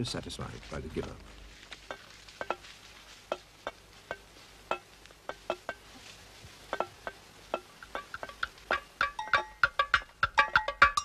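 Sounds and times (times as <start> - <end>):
sparse percussion knocks: 3.3 - 5.8, 6.7 - 11.0.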